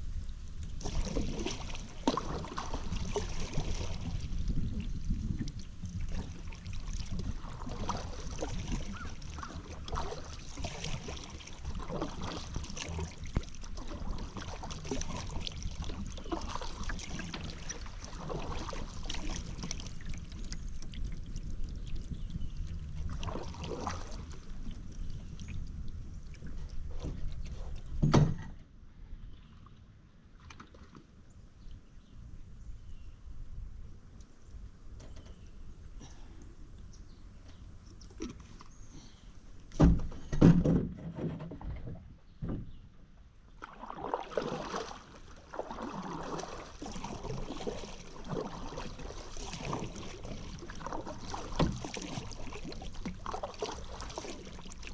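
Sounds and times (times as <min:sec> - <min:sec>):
paddle splashing in water: 0:00.6 - 0:28.5, 0:29.3 - 0:31.2, 0:43.5 - 0:54.9.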